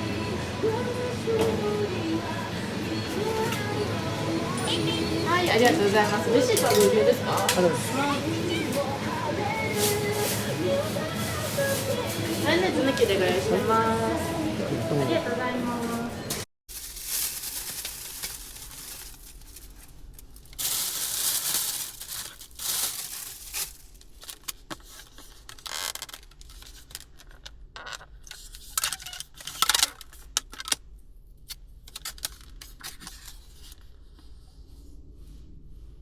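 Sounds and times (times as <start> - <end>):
packaging rustling and crinkling: 9.5 - 13.2, 16.7 - 27.4, 31.9 - 33.8.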